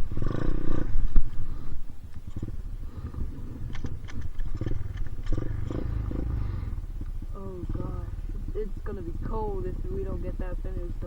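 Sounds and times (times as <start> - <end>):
dirt bike engine idling: 0.0 - 11.0.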